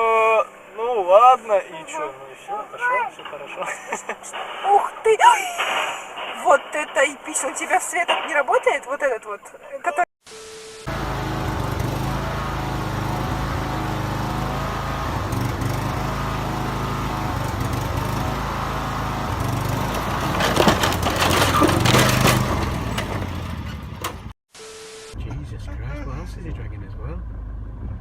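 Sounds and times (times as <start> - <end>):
engine running: 10.8 - 24.4
cracking and crunching: 19.6 - 23.4.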